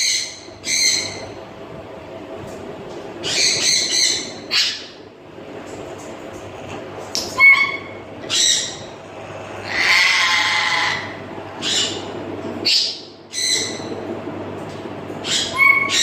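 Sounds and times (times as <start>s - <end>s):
parrots whistling and squawking: 0.0s - 1.4s, 3.2s - 5.0s, 7.3s - 8.9s, 9.6s - 13.9s, 15.2s - 16.0s
parrot harsh screech: 9.6s - 11.9s.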